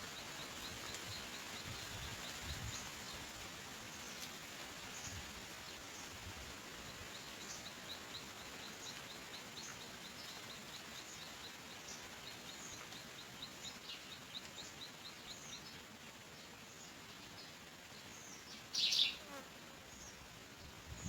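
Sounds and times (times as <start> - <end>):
background hiss: 0.0 - 21.0
bird chirping: 18.1 - 19.4.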